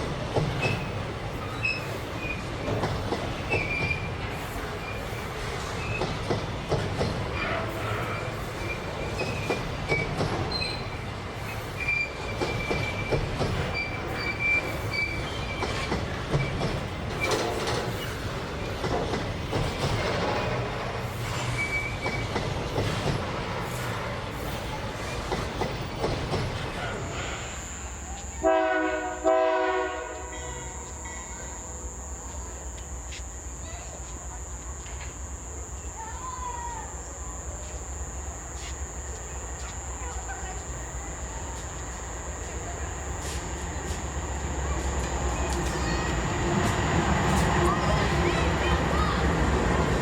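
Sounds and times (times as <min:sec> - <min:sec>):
freight train wagons rolling: 0:00.0 - 0:50.0
wheels clicking over rail joints: 0:00.1 - 0:27.4
high wheel squeal: 0:07.4 - 0:16.6, 0:21.2 - 0:22.4
locomotive air horn blasts: 0:28.4 - 0:33.5.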